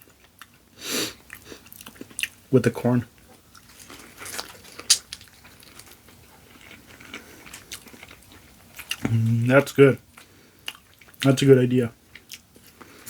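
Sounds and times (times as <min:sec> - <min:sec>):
chewing with wet clicks and smacks: 0:00.0 - 0:00.6, 0:01.2 - 0:02.4, 0:03.2 - 0:11.4, 0:12.1 - 0:13.0
corn crunch: 0:03.6 - 0:08.2.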